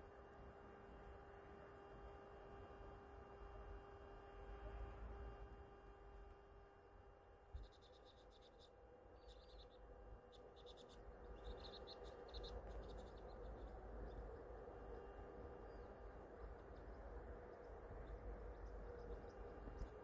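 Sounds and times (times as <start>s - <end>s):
small birds chirping: 7.4s - 20.0s.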